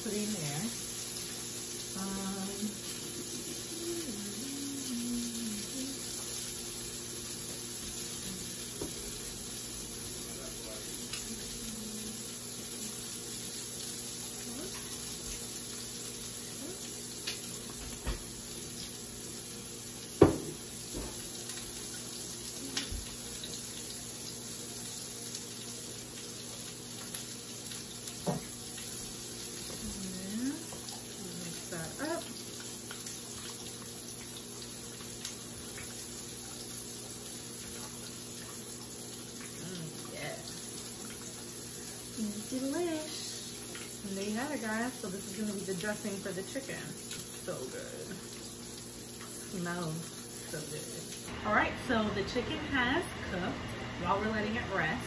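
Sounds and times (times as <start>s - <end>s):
chicken sizzling in a pan: 0.0s - 55.0s.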